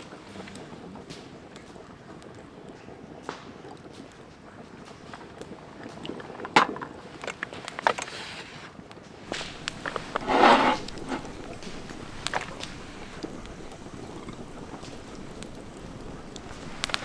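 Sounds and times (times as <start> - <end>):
wind: 3.7 - 17.0
sharp clicks and snaps: 9.3 - 17.0.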